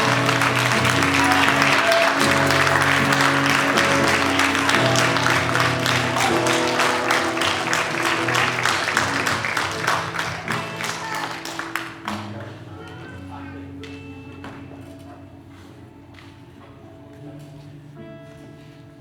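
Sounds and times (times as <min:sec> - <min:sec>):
congregation clapping: 0:00.0 - 0:13.0
instrumental church music: 0:00.0 - 0:19.0.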